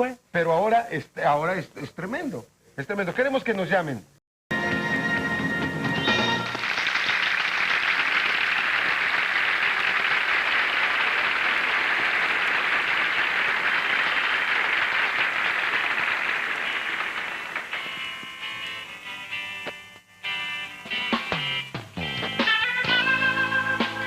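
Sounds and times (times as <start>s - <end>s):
music: 4.5s - 6.9s, 16.7s - 24.0s
audience applause: 6.2s - 18.0s.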